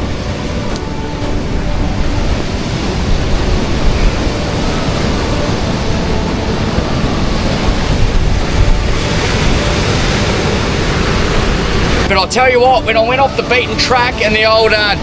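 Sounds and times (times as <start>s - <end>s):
loud rushing noise with low rumble: 0.0s - 15.0s.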